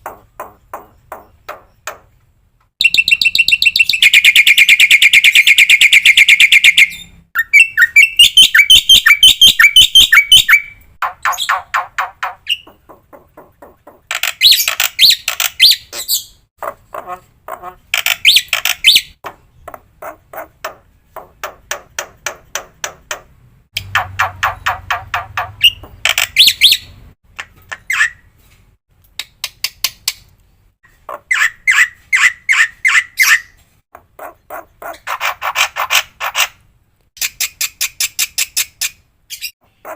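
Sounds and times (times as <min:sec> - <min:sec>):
starling singing: 0:02.8 - 0:12.9.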